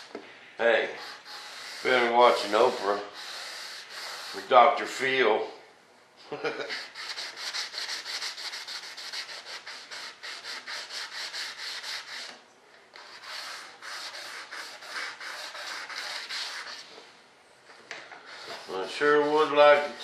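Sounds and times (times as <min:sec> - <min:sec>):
sanding block rasping: 0:00.9 - 0:04.5, 0:06.7 - 0:12.4, 0:13.0 - 0:16.9, 0:18.3 - 0:20.0.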